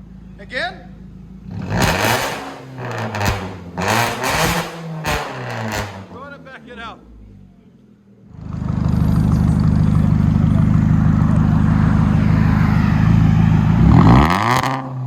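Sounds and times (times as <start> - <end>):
loud car exhaust: 0.0 - 7.6, 8.2 - 15.0.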